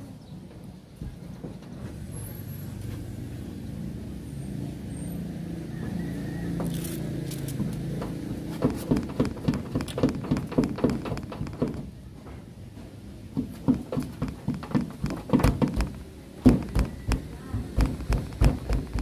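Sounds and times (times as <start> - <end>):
sharp taps on metal roof: 7.9 - 12.4, 13.2 - 19.0.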